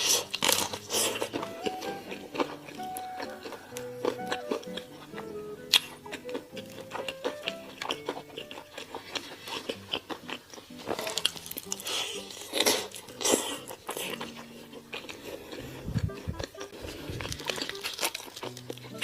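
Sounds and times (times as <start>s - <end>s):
crunchy food chewing: 0.0s - 19.0s
wet mouth clicks: 0.0s - 19.0s.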